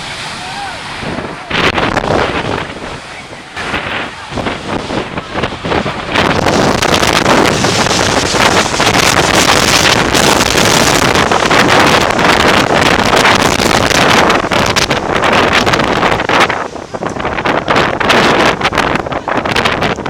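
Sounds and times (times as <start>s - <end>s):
jet engines at take-off thrust: 0.0s - 20.0s
wind buffeting microphone: 0.0s - 20.0s.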